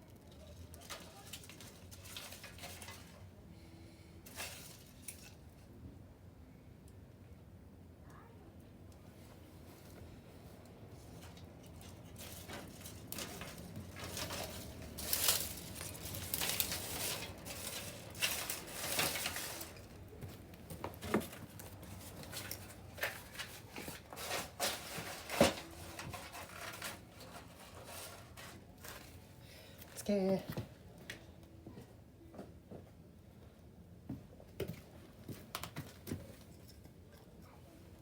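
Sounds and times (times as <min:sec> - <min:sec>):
bonfire crackling and popping: 0:11.3 - 0:24.8.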